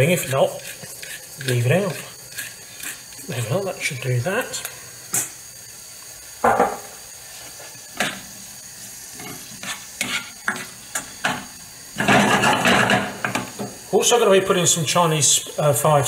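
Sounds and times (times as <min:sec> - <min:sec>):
spoon scraping and knocking wok: 0:00.0 - 0:03.3, 0:07.9 - 0:08.3, 0:09.2 - 0:13.8
vegetables sizzling in oil: 0:00.0 - 0:15.8.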